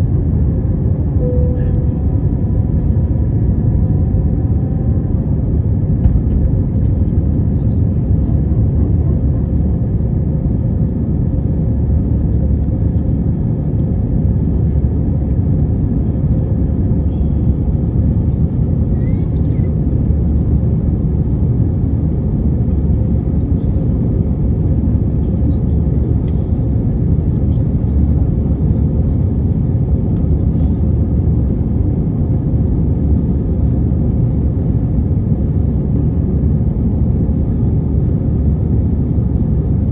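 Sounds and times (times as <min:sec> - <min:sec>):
airplane cabin engine rumble: 0:00.0 - 0:39.9
faint steady hum: 0:01.0 - 0:05.0.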